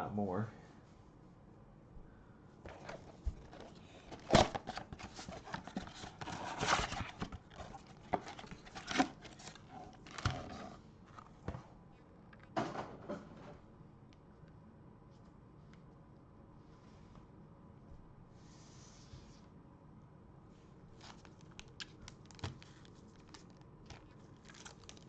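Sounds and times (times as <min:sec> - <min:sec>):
wrappers and cardboard crinkling: 0:02.7 - 0:11.3, 0:20.9 - 0:25.0.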